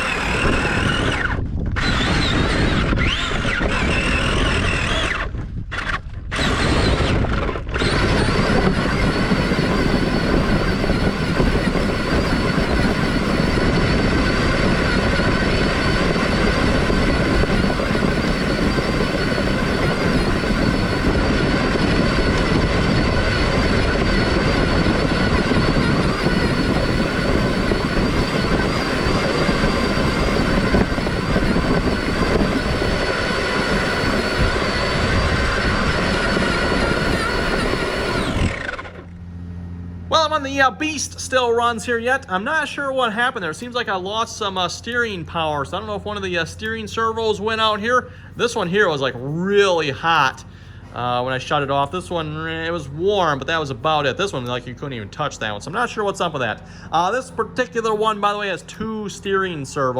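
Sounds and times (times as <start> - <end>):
electric motor whine: 0.0 - 42.0.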